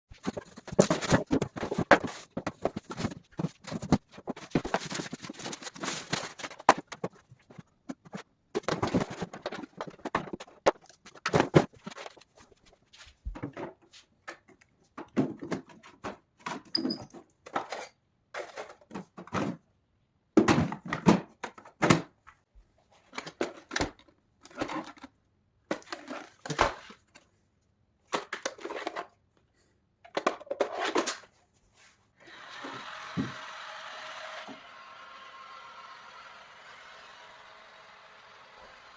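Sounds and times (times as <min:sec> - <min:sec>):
cardboard box being handled: 0:00.2 - 0:08.2
packaging rustling: 0:00.2 - 0:12.6.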